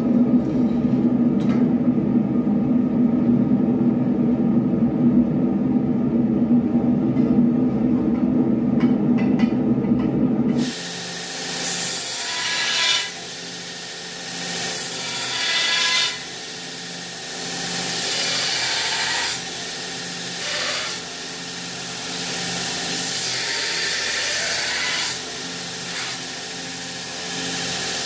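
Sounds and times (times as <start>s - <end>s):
steady low hum: 0.0s - 10.6s
power tool on steel blade: 10.6s - 28.0s.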